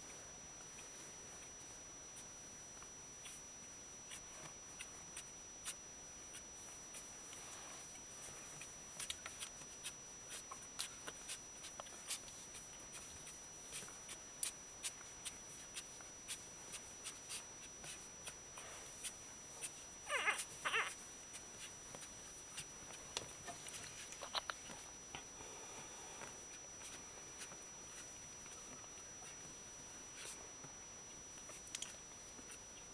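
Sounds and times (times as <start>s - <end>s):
puppy squeaks: 20.1s - 21.0s.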